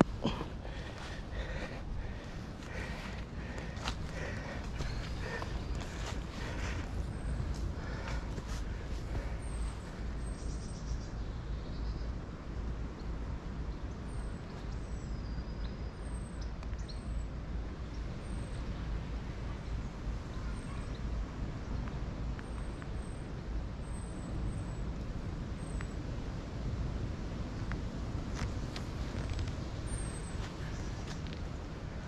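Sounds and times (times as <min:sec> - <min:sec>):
steady low rumble: 0:00.0 - 0:16.6.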